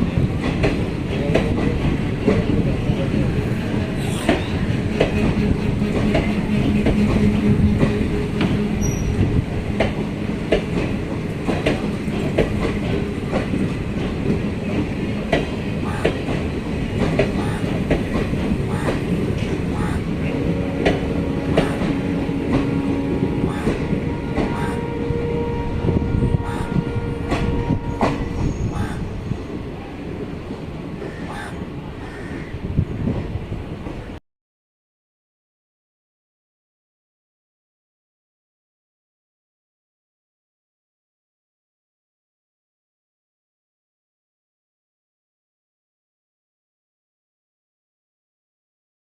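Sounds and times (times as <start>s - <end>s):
train rumbling on rails: 0.0s - 34.2s
wheels clicking over rail joints: 9.7s - 20.0s.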